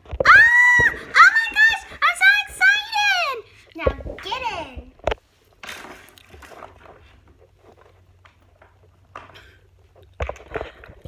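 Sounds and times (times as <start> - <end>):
plastic toys tapping and scraping: 3.6 - 11.0.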